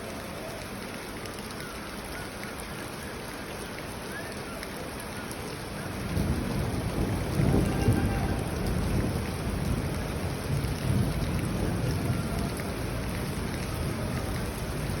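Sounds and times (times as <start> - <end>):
steady rain falling: 0.0 - 15.0
thunder rumble: 5.9 - 15.0.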